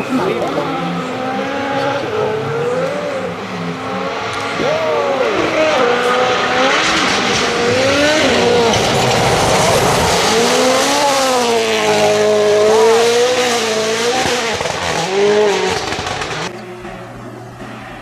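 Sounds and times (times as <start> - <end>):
rally car engine at full throttle: 0.0 - 18.0
rushing noise: 3.9 - 16.5.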